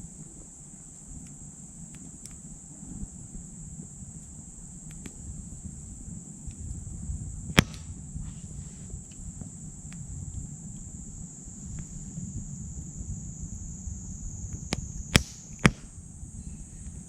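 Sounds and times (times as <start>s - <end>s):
high-pitched insect drone: 0.0s - 17.0s
wood fire crackling: 7.5s - 7.9s, 15.0s - 15.8s
loud sharp pop: 7.6s - 8.0s, 14.7s - 15.9s.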